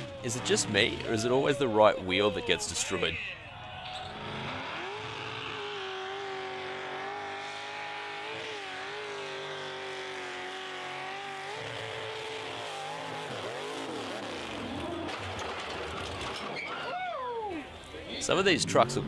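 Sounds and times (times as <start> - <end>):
truck engine revving: 4.0 - 16.3, 18.2 - 19.0.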